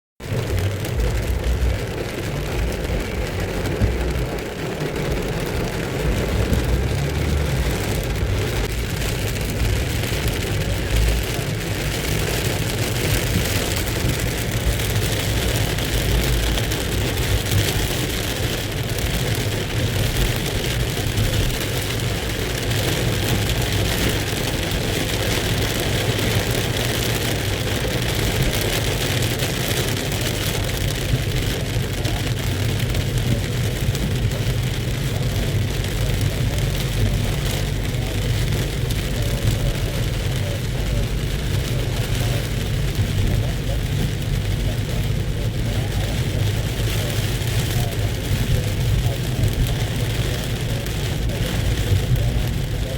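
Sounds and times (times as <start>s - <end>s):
heavy rain pouring: 0.2s - 52.9s
low rumble: 0.2s - 52.9s.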